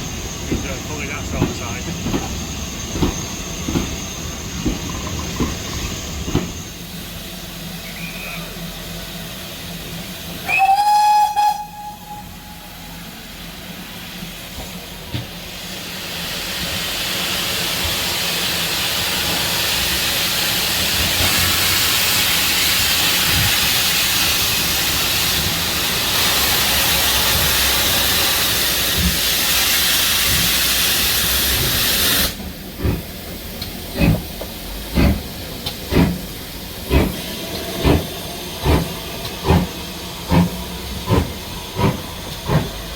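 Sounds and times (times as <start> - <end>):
locomotive exhaust chuffs: 0.0 - 42.9
loud hiss of steam: 0.0 - 42.9
steam locomotive whistle: 10.4 - 13.0.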